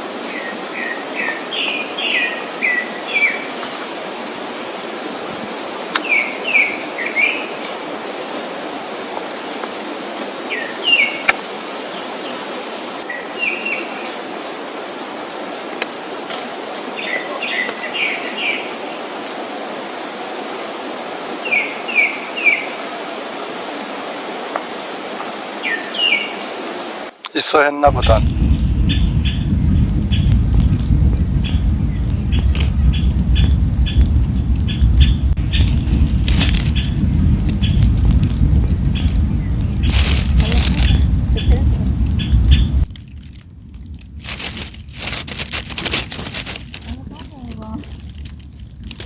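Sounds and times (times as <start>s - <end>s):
songbird chirping: 27.9s - 49.0s
steady rushing noise: 27.9s - 49.0s.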